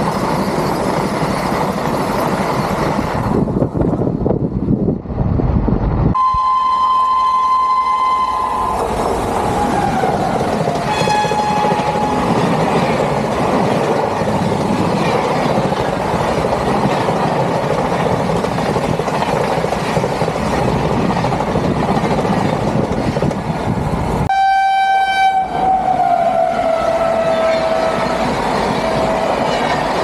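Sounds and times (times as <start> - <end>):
high-speed train passing: 0.0 - 30.0
train horn: 6.2 - 12.5, 24.3 - 29.7.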